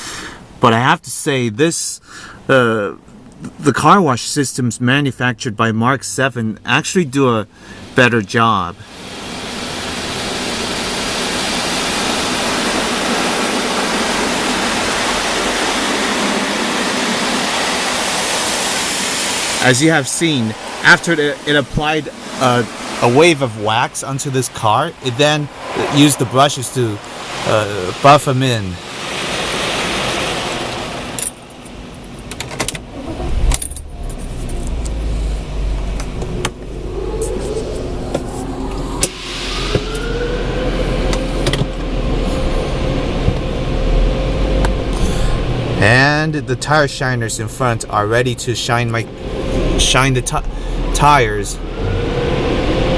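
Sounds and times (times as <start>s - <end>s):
car wash water spraying: 8.8s - 52.9s
low rumble: 32.8s - 52.9s.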